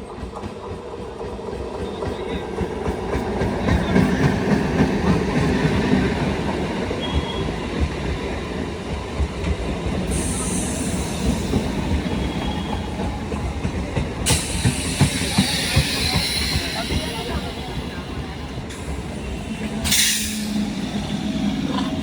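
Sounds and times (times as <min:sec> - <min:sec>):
train wheels clattering over rails: 0:00.0 - 0:22.0
faint wheel squeal: 0:10.1 - 0:13.0.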